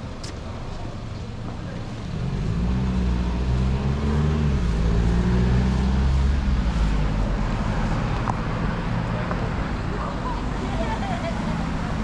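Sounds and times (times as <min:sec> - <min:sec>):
traffic noise: 0:00.0 - 0:12.0
vehicle engine accelerating: 0:02.0 - 0:09.7.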